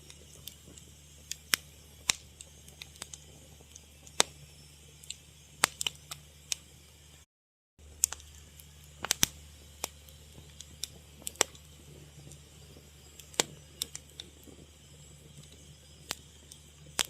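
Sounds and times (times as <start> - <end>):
burning wood crackling: 0.0 - 7.2, 7.8 - 17.0
faint low hum: 7.8 - 17.0.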